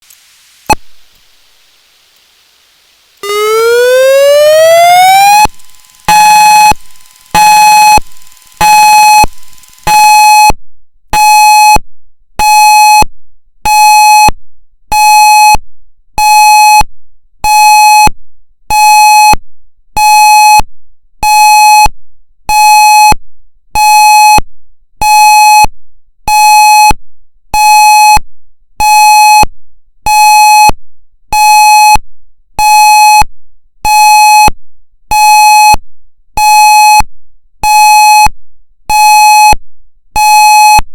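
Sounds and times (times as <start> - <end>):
pulsing warning siren: 3.2 - 10.4.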